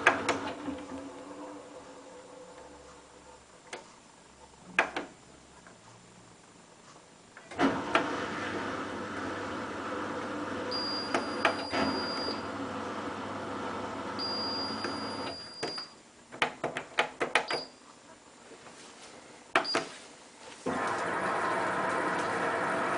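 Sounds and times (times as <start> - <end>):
washing machine motor humming: 0.0 - 3.7, 7.5 - 15.5, 20.6 - 22.9.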